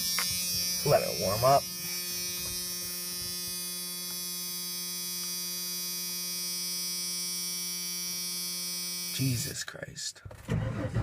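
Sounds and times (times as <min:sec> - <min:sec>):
steady electrical hum: 0:00.0 - 0:10.0.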